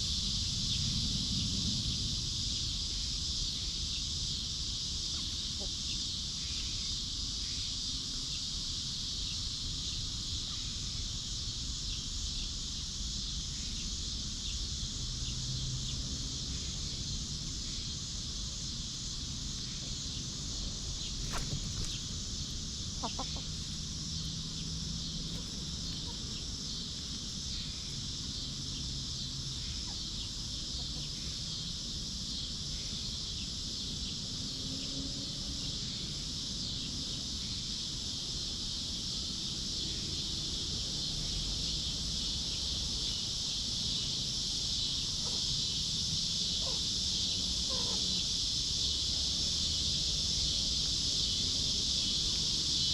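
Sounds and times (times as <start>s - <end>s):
steady high-pitched hiss: 0.0s - 52.9s
hens clucking softly: 21.2s - 22.1s, 22.9s - 23.8s, 25.2s - 27.2s, 46.6s - 48.2s.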